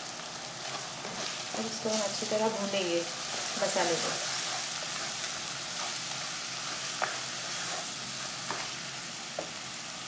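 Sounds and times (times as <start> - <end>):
masala paste sizzling in oil: 0.0 - 10.0.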